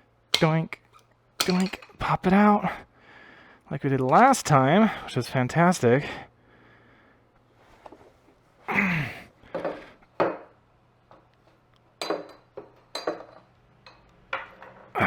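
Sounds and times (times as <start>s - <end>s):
metallic clinks and knocks: 0.4s - 2.0s, 12.0s - 14.9s.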